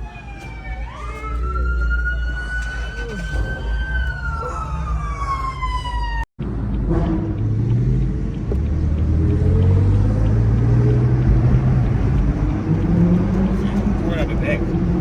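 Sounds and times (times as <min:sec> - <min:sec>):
siren wailing: 0:00.0 - 0:06.3
car engine rumbling: 0:00.0 - 0:15.0.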